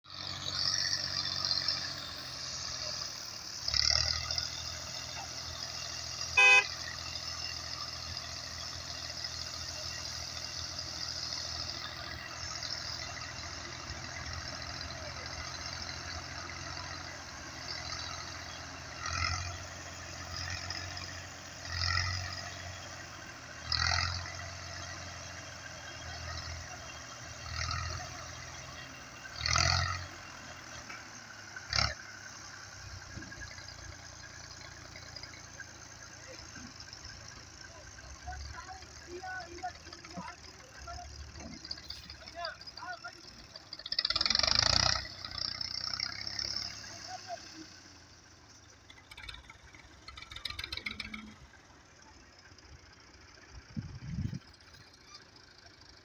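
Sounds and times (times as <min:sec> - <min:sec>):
tractor diesel engine straining: 0:00.0 - 0:56.0
vehicle horn toot: 0:06.3 - 0:06.9.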